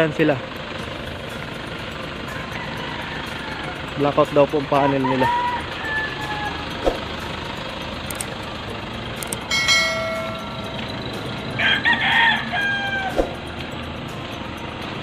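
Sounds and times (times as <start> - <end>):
road noise: 0.0 - 15.0
rooster crowing: 2.3 - 3.8, 4.8 - 6.9, 11.6 - 13.3.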